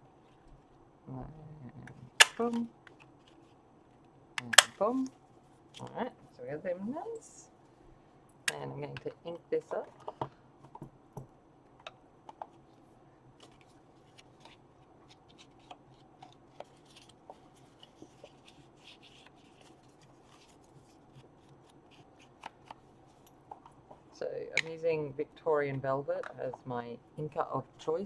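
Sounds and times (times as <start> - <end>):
paper rustling: 2.1 - 6.0, 12.4 - 24.2
soft scrubbing: 12.5 - 24.2.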